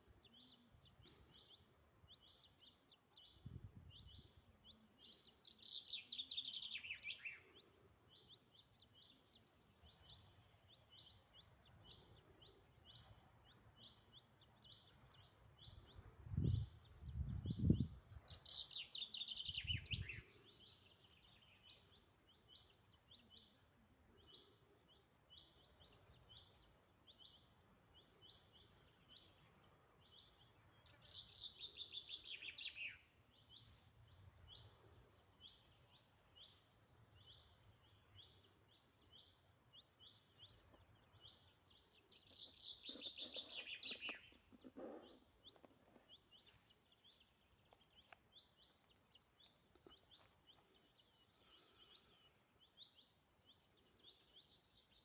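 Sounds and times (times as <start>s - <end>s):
songbird short high chirps: 30.1s - 34.8s, 38.2s - 55.0s.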